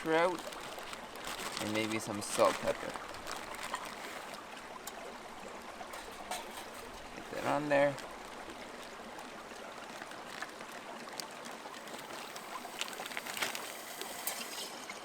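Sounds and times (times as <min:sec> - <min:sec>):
stream flowing over rapids: 0:00.0 - 0:15.0
light clicks and crackles: 0:00.1 - 0:05.1, 0:09.8 - 0:15.0.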